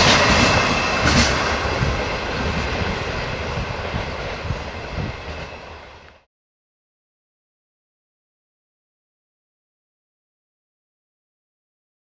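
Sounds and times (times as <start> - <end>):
train wheels clacking: 0.0 - 6.2
train wheels rumbling on rails: 0.0 - 6.3.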